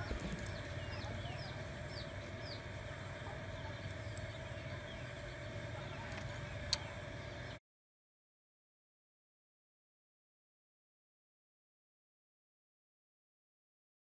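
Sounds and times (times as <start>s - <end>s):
low background hum: 0.0s - 7.6s
small birds peeping: 0.0s - 7.6s.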